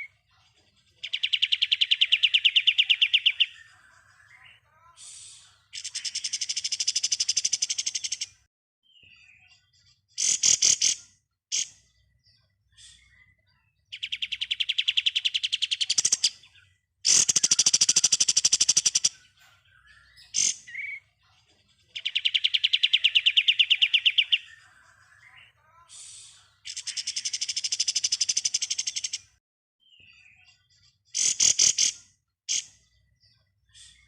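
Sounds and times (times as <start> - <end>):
bird chattering calls: 1.0 - 4.5, 5.7 - 8.4, 10.2 - 11.8, 14.0 - 21.0, 22.0 - 25.5, 26.6 - 29.3, 31.1 - 32.8
songbird fast trills: 17.1 - 19.2.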